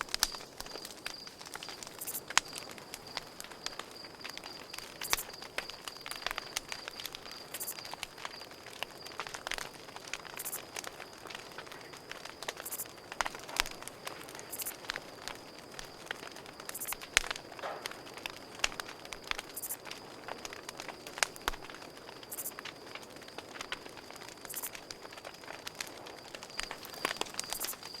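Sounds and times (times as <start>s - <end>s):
campfire crackling and popping: 0.0s - 28.0s
cricket trill: 0.0s - 28.0s.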